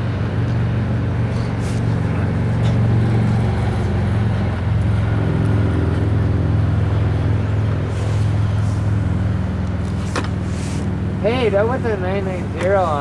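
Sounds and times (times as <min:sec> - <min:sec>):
diesel train drone: 0:00.0 - 0:13.0.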